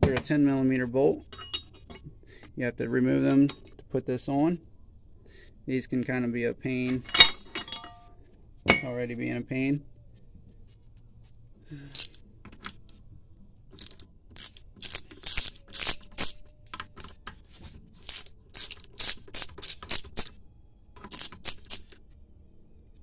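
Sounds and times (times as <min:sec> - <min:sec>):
ratchet wrench clicking: 0:11.8 - 0:13.0, 0:13.8 - 0:17.2, 0:18.0 - 0:20.4, 0:21.0 - 0:22.0.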